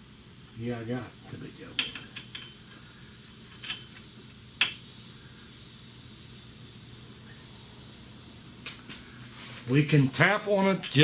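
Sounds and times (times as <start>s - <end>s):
steady background hiss: 0.0s - 11.0s
metal tools clinking: 1.8s - 2.6s, 3.5s - 3.9s, 10.6s - 11.0s.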